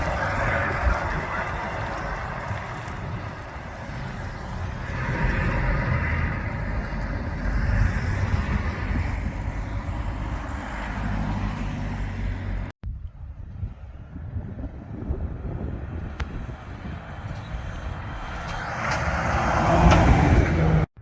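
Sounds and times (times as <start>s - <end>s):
diesel truck engine passing: 0.0s - 12.7s, 14.1s - 20.9s.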